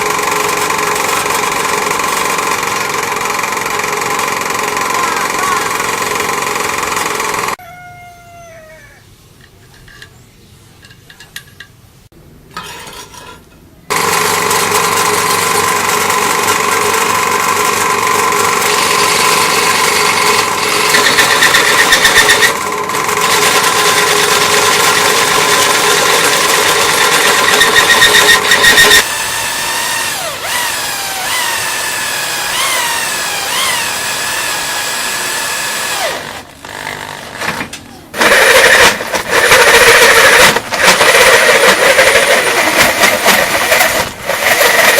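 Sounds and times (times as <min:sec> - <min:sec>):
lathe motor humming: 0:00.0 - 0:07.6, 0:13.9 - 0:37.5, 0:38.2 - 0:44.9.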